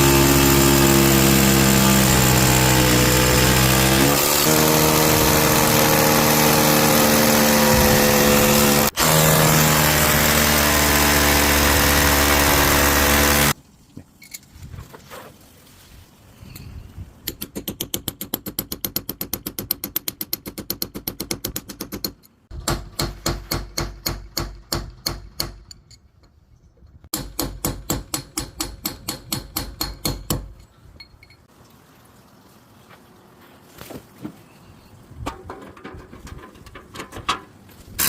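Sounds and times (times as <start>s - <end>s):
hammer drill hammering: 0.0s - 13.6s.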